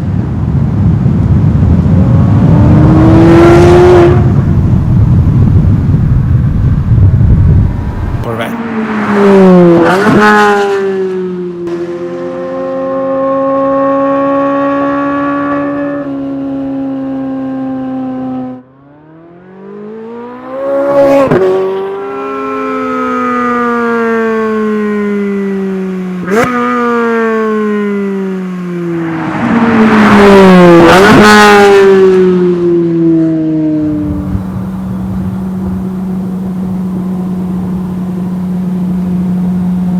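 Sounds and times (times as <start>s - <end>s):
car engine revving at high revs: 1.5s - 33.0s, 33.6s - 39.9s.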